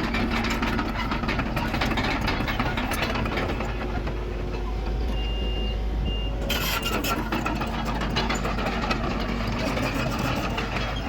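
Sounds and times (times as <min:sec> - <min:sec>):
heavy diesel machinery running: 0:00.0 - 0:11.0
high reversing alarm beep: 0:05.1 - 0:06.3.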